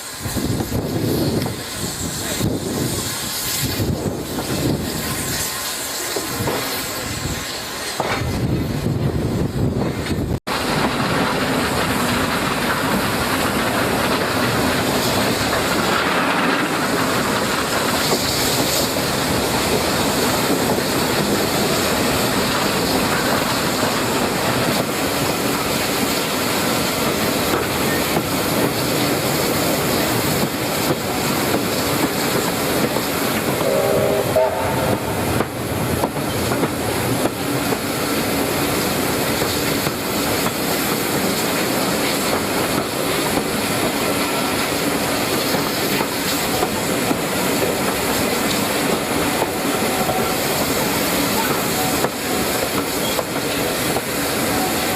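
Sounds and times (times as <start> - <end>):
train rumbling and clattering: 0.0 - 54.9
short whistle-like tone: 33.6 - 35.2.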